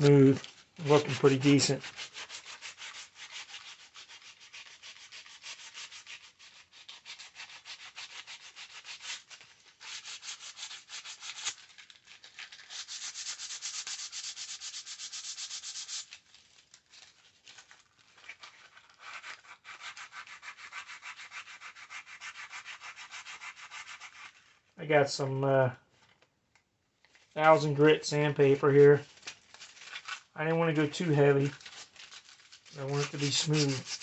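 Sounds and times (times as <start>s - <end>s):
sandpaper rubbing: 0.0s - 16.4s, 18.3s - 24.6s, 31.4s - 34.0s.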